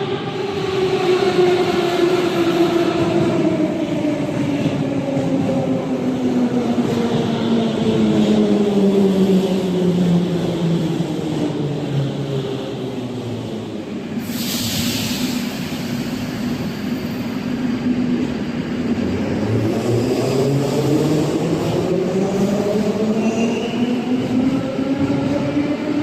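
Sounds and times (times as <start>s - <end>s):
air hiss: 14.2s - 17.5s.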